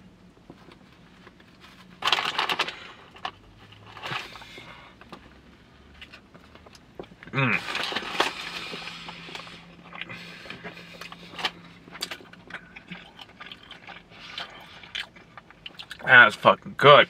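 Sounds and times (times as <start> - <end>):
faint steady hum: 0.0 - 17.0
chewing and biting food: 7.9 - 16.0.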